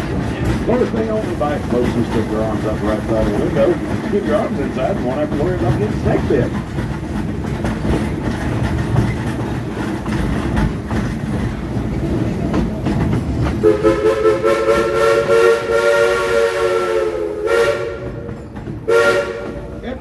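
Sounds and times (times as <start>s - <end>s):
steam train rumble and rail clatter: 0.0s - 20.0s
steam locomotive whistle: 13.6s - 18.3s, 18.9s - 19.7s.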